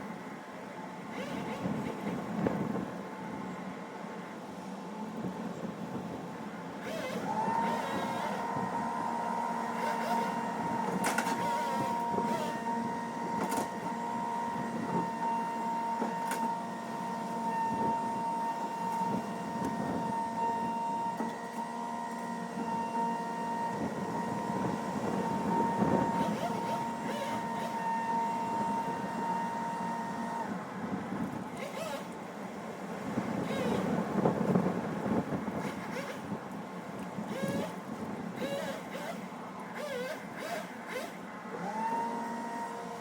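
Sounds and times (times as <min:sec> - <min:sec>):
small engine running at high speed: 0:01.1 - 0:02.8, 0:06.8 - 0:30.6, 0:31.5 - 0:32.2, 0:33.4 - 0:34.8, 0:35.5 - 0:36.4, 0:37.2 - 0:43.0.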